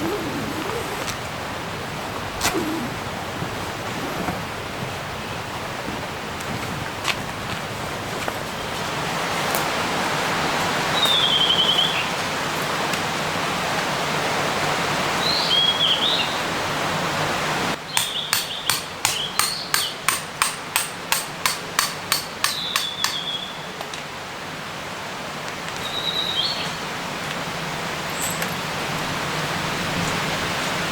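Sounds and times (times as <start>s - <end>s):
rushing outdoor background: 0.0s - 12.8s
sharp hammer knocks: 18.0s - 23.3s.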